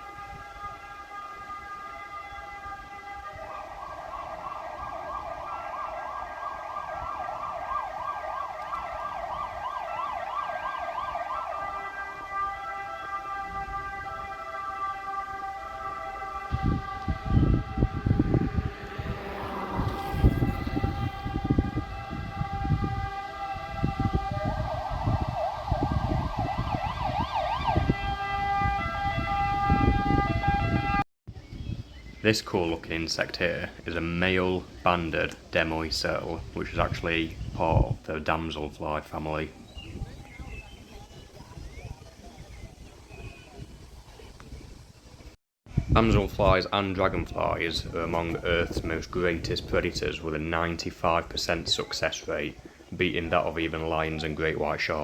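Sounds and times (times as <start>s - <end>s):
emergency vehicle siren yelping: 0.0s - 31.0s
low buffeting rumble: 15.5s - 27.4s.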